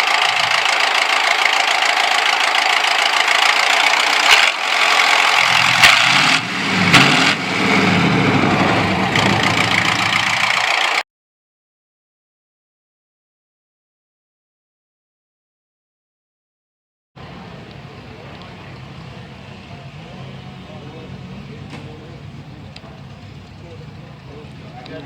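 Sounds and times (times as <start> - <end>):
deeper engine rumble: 0.0 - 11.0, 17.2 - 25.0
tractor diesel engine running: 0.0 - 11.0, 17.2 - 25.0.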